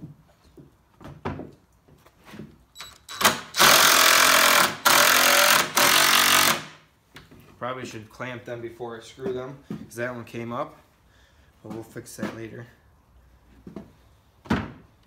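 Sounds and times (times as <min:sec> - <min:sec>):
power driver driving screw: 0:02.8 - 0:06.8.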